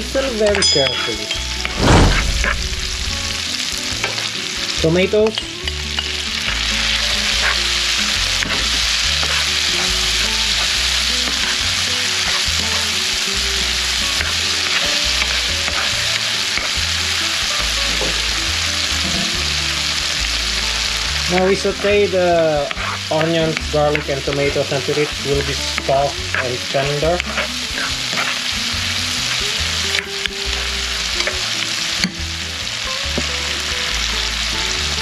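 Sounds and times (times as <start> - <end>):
vegetables sizzling in a frying pan: 0.0 - 35.0
spatula stirring: 22.6 - 30.2.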